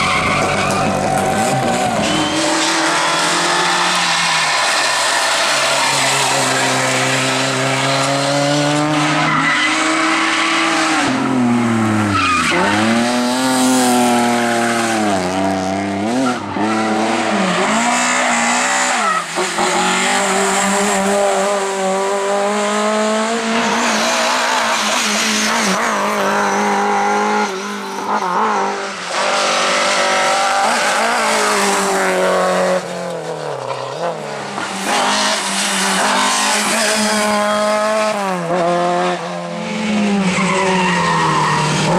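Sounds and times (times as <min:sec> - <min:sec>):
tyres skidding and squealing: 0:00.0 - 0:22.0, 0:23.4 - 0:41.9
rally car engine revving: 0:00.0 - 0:41.9.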